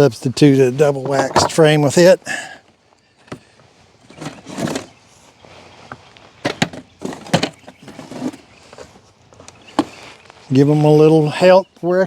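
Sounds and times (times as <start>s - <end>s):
wooden frame scraping: 1.0s - 1.8s, 3.3s - 9.0s.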